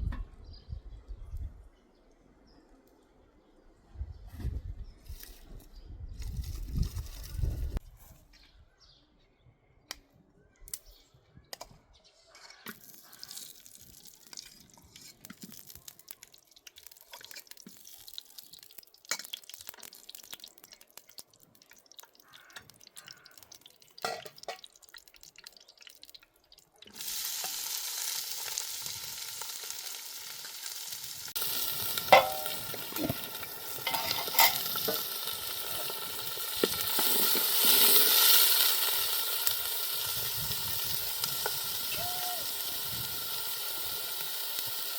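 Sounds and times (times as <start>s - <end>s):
food sizzling in hot oil: 12.7s - 44.9s.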